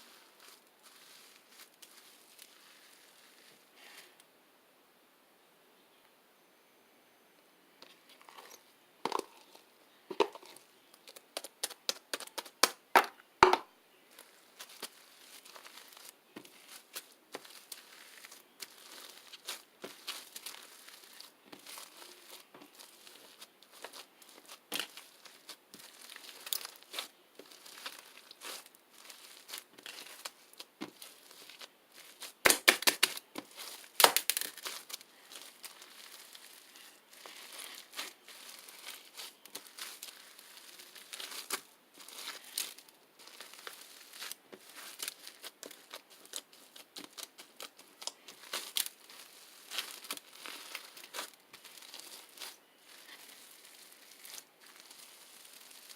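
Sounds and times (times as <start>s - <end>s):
slime clicking and crackling: 11.0s - 12.8s, 14.1s - 55.9s.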